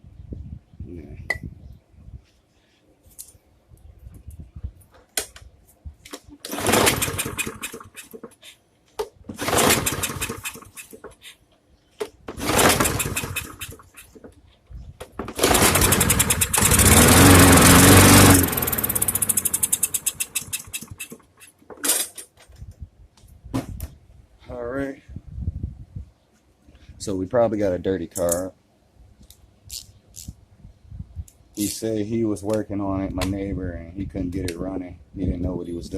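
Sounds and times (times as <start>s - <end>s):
lawn mower engine pull-started: 6.4s - 8.1s, 9.3s - 10.9s, 12.3s - 13.9s, 15.2s - 21.2s.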